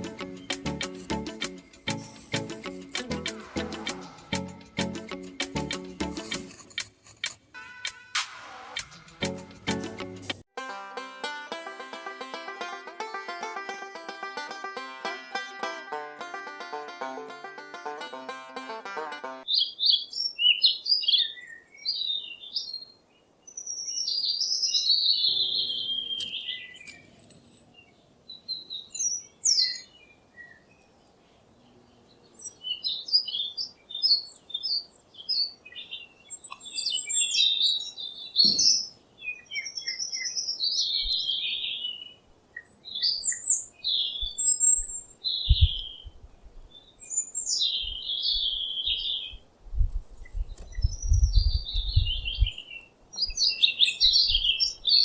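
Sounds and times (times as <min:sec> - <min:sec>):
small birds chirping: 0:00.0 - 0:04.4, 0:19.4 - 0:55.0.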